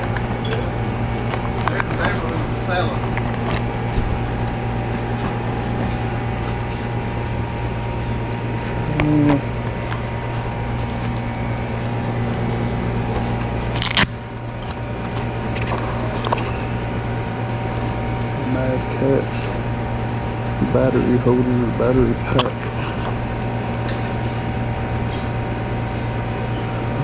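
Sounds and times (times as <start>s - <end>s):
low mechanical hum: 0.0s - 27.0s
brief low tone: 0.4s - 0.8s.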